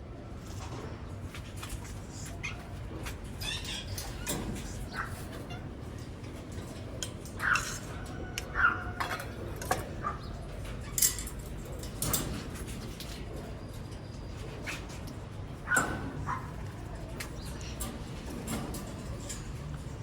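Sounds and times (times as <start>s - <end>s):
parrots calling: 3.4s - 5.7s.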